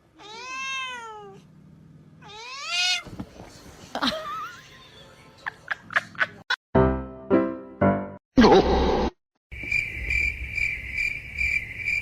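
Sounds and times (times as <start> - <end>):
cat meowing: 0.2 - 1.4, 2.2 - 3.1.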